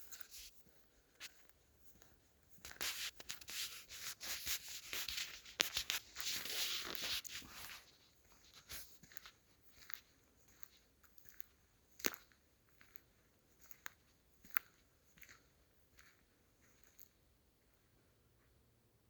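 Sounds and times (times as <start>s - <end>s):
footsteps in dry leaves: 2.7s - 10.0s.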